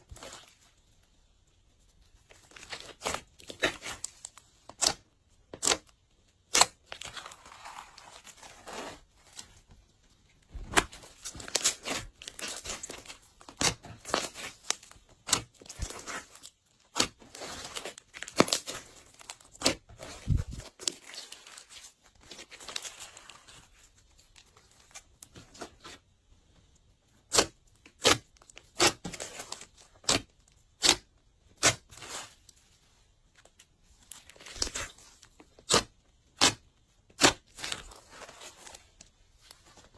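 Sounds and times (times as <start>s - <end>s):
slime crackling and tearing: 2.4s - 9.5s, 10.6s - 23.6s, 27.2s - 32.5s, 34.0s - 39.0s.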